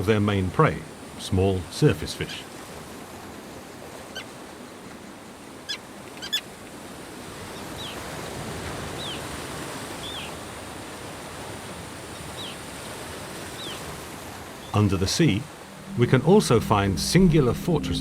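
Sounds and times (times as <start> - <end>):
terns calling: 5.7 - 6.5, 7.5 - 8.2, 8.9 - 9.3, 10.0 - 10.4, 12.0 - 12.8, 13.4 - 18.0
sea surf washing: 6.6 - 18.0.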